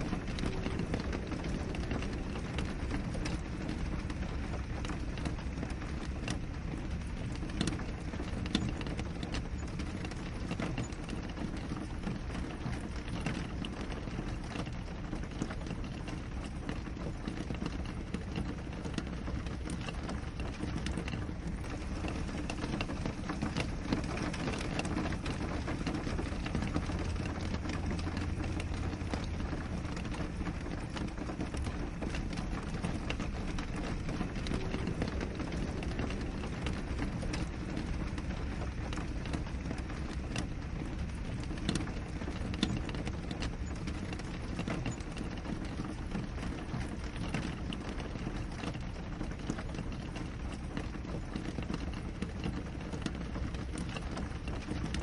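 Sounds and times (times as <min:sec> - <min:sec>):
rain pattering on window glass: 0:00.0 - 0:55.0.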